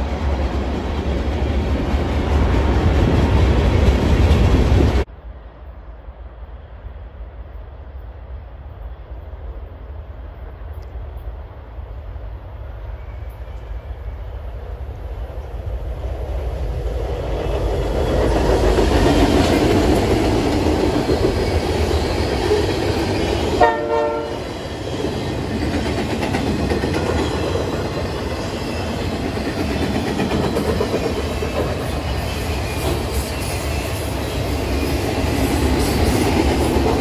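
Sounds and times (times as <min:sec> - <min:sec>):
freight train rolling past: 0:00.0 - 0:37.0
train horn: 0:23.6 - 0:24.6.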